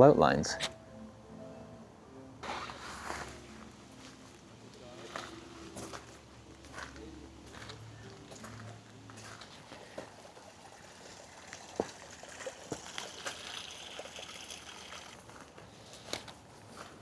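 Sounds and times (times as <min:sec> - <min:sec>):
water trickling: 0:08.4 - 0:15.7.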